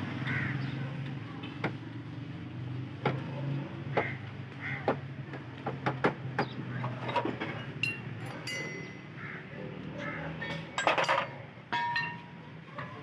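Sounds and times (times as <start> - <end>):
metal tools and parts clattering: 6.8 - 9.1, 10.5 - 12.4
metal pieces ringing: 6.9 - 9.1, 10.7 - 12.4.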